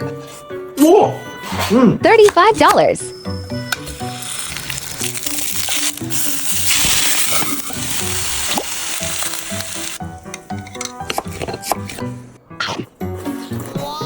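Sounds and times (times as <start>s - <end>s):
background music: 0.0s - 14.0s
onion sizzling in a pan: 3.4s - 10.0s.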